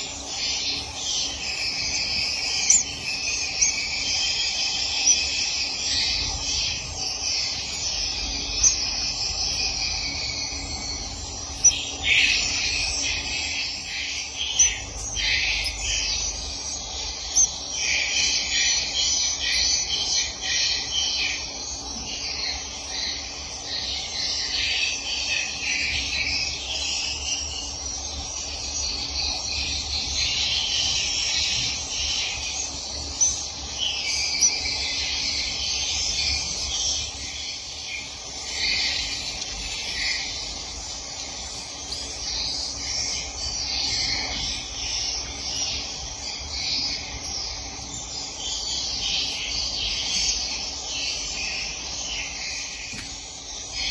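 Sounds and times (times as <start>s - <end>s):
swiftlets twittering: 0.0s - 53.9s.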